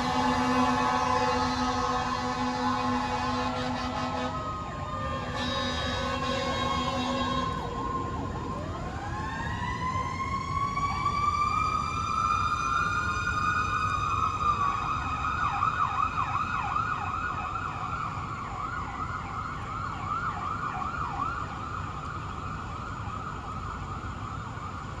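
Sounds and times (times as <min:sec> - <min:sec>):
vehicle engines rumbling: 0:00.0 - 0:15.4
warbling yelp siren: 0:00.0 - 0:23.6
wailing siren: 0:00.0 - 0:25.0.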